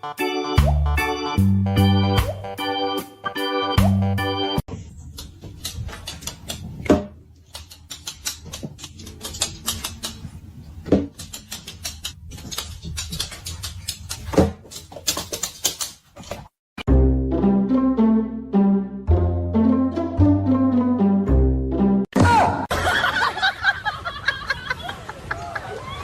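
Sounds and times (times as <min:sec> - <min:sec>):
small clicks and taps: 0:07.4 - 0:10.2.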